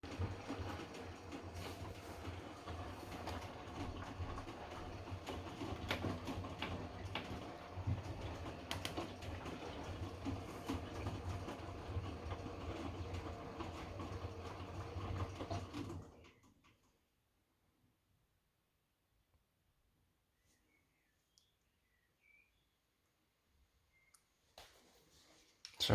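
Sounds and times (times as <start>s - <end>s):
washing machine drum tumbling: 0.0s - 16.4s.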